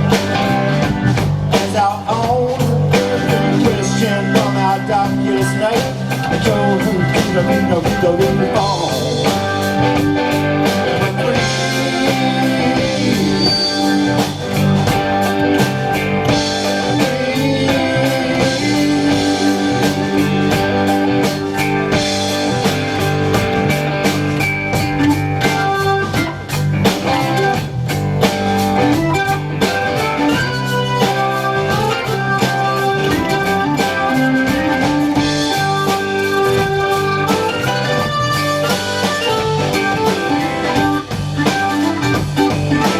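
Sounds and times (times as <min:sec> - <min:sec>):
bass guitar: 0:00.0 - 0:42.9
drum kit: 0:00.0 - 0:42.9
electric guitar: 0:00.0 - 0:42.9
live rock band playing: 0:00.0 - 0:42.9.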